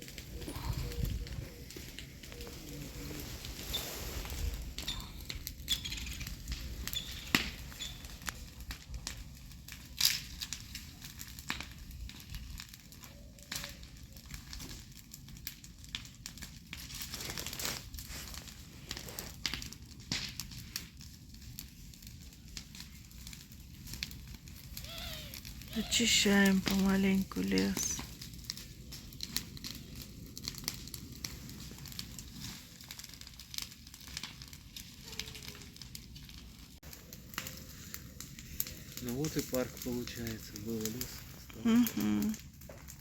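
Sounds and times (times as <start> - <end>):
dry leaves crunching and rustling: 0.0 - 8.7, 16.8 - 19.4
sharp cracks: 4.8 - 9.1, 9.8 - 10.8.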